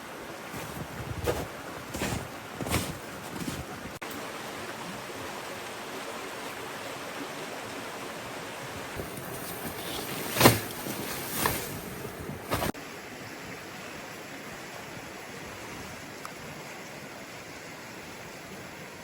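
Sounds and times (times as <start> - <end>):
wind noise: 0.5 - 4.0, 8.8 - 12.8.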